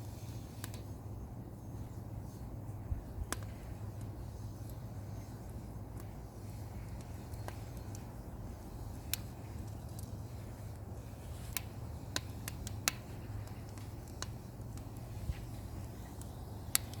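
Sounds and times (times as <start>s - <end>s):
wood fire crackling: 0.0s - 17.0s
sharp pops: 11.4s - 15.1s.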